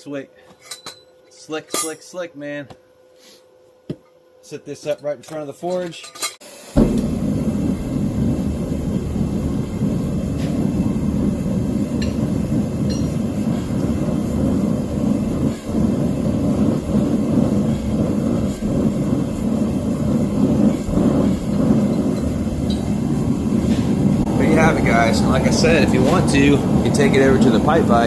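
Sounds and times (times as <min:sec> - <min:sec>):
forge roaring: 0:06.8 - 0:28.0.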